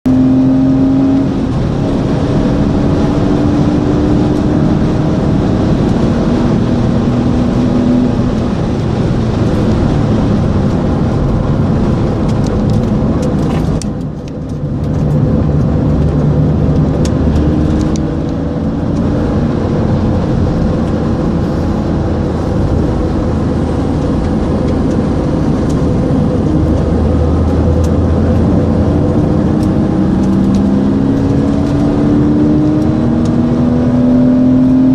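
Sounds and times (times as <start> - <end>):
car engine at speed: 0.0 - 34.9
wind and road noise: 0.0 - 34.9.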